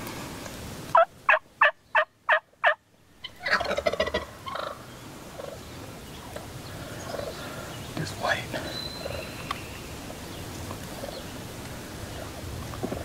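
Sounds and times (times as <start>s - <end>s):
turkey yelps: 0.9s - 4.8s
turkey gobble: 0.9s - 5.6s, 7.0s - 7.4s, 12.0s - 13.0s.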